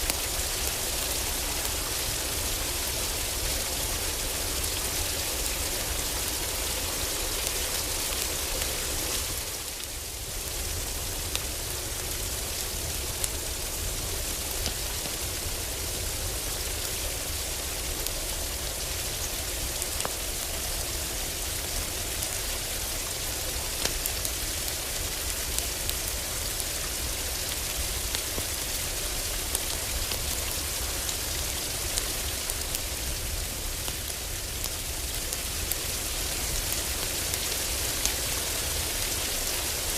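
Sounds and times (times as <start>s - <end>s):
heavy rain on a roof: 0.0s - 39.9s
wood fire crackling: 0.1s - 39.9s.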